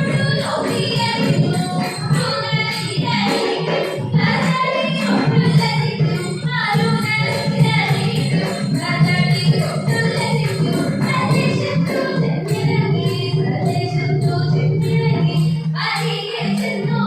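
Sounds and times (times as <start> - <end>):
hand cymbals jingling: 0.0 - 16.9
voices singing chanting melody: 0.0 - 17.0.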